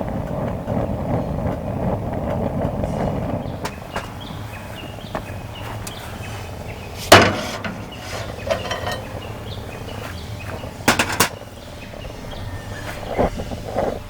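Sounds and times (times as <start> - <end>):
hard objects knocking and clattering: 7.1 - 9.2, 10.9 - 11.4
soft thumps: 7.1 - 9.2.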